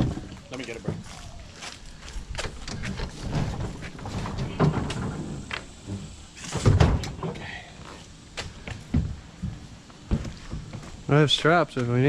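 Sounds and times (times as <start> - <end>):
heavy junk knocking and scraping: 2.6 - 7.4.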